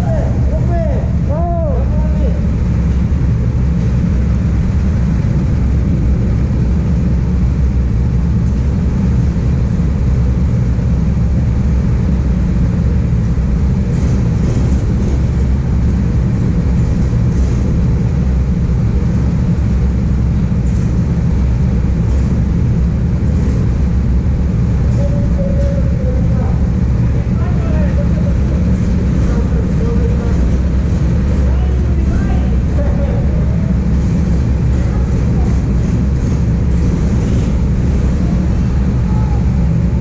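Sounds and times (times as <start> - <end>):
go-kart engine droning: 21.5 - 40.0.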